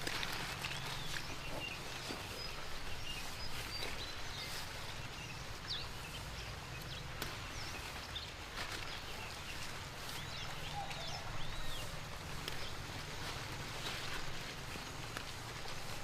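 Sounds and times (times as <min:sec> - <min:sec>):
rain hiss: 0:00.0 - 0:16.0
bird chirps: 0:00.6 - 0:12.8.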